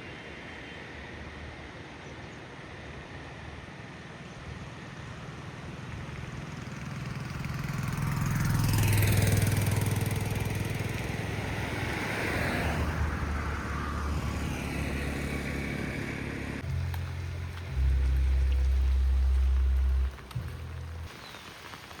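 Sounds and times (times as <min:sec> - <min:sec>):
vehicles passing: 0:03.4 - 0:21.1
low hum: 0:12.8 - 0:21.1.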